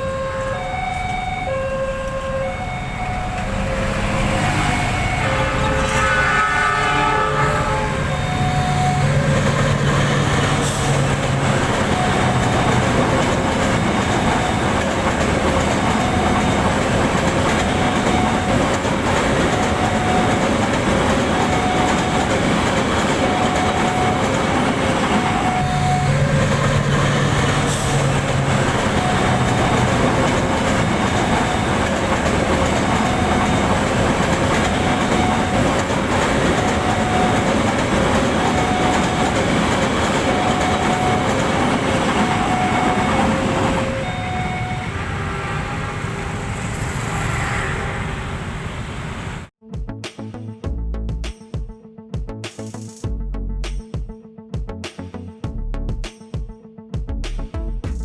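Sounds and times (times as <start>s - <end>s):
locomotive horn: 0.0s - 11.0s, 21.3s - 35.9s, 38.3s - 48.8s
crossing warning bell: 0.0s - 47.4s
train wheels clattering on rails: 8.8s - 44.8s.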